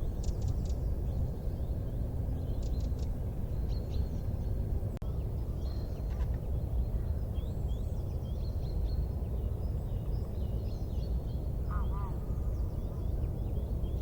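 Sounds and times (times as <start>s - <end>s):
low rumbling noise: 0.0s - 14.0s
small birds chirping: 2.4s - 4.6s.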